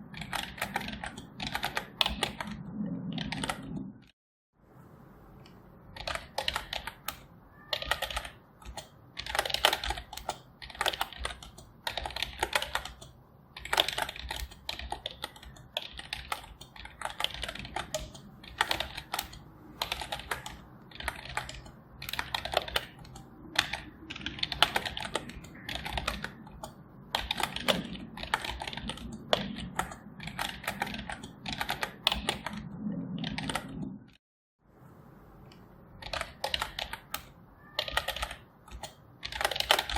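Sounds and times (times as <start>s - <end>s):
keyboard typing clicks: 0.0s - 4.1s, 5.4s - 34.2s, 35.5s - 39.9s.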